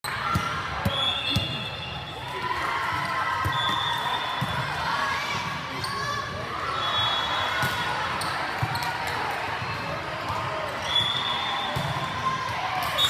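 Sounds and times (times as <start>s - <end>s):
voices echoing in gym: 0.0s - 13.0s
volleyball bouncing on gym floor: 0.1s - 1.6s, 11.7s - 12.5s.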